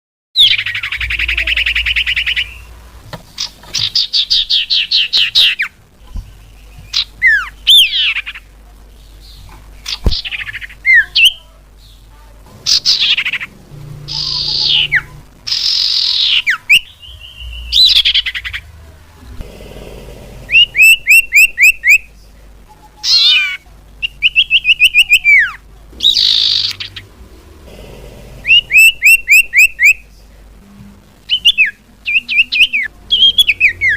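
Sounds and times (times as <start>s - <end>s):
bird calling with whistles and trills: 20.5s - 22.0s, 28.4s - 30.0s.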